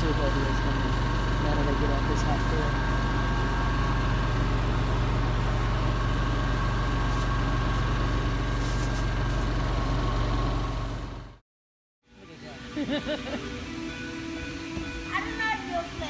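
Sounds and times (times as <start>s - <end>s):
engine idling hum: 0.0s - 11.4s.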